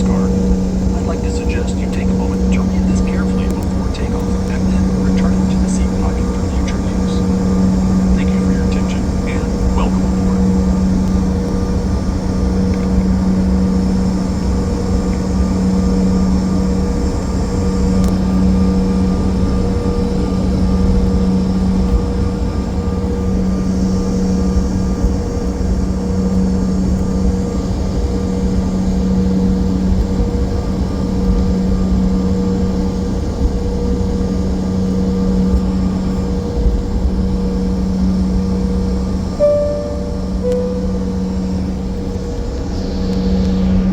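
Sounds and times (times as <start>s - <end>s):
low constant hum: 0.0s - 42.6s
jet engine and airflow drone: 0.0s - 43.9s.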